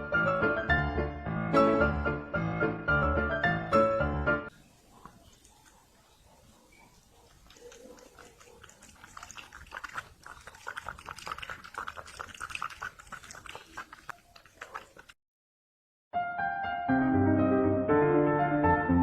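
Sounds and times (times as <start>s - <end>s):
pet animal clicks and smacks: 5.0s - 15.2s.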